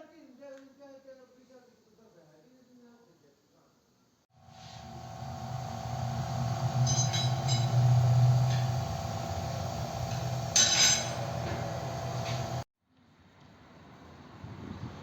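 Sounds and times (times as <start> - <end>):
loud burst of hiss: 4.4 - 12.6
motor humming: 4.4 - 12.6.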